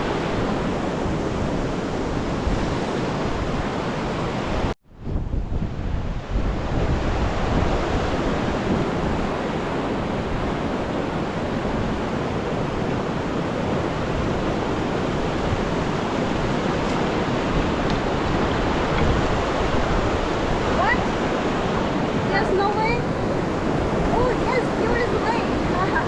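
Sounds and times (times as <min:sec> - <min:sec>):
waterfall rushing: 0:13.3 - 0:26.0.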